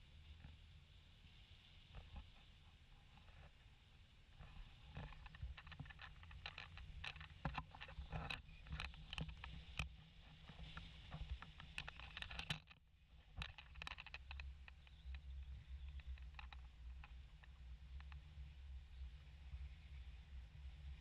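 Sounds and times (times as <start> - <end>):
sharp clicks and knocks: 4.9 - 9.9, 10.5 - 18.2.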